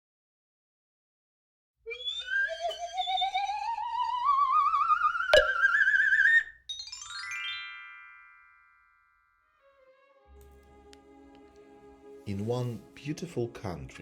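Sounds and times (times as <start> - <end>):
wavering theremin-like tone: 1.9 - 6.5.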